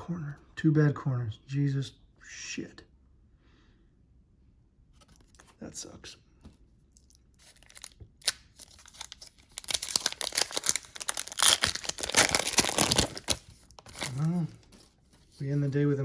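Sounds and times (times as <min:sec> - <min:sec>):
wrapper crinkling and tearing: 0:07.0 - 0:14.9.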